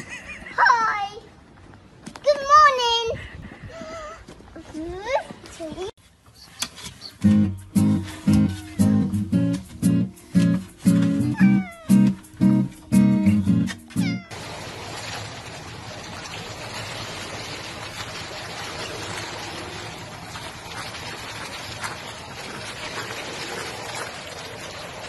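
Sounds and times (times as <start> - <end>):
water sloshing in a pool: 14.3 - 25.0.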